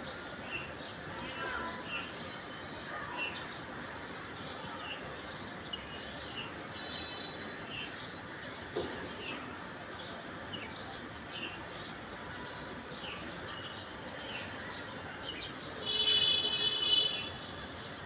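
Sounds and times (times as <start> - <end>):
steady background noise: 0.0 - 18.0
brief knock: 8.7 - 9.2.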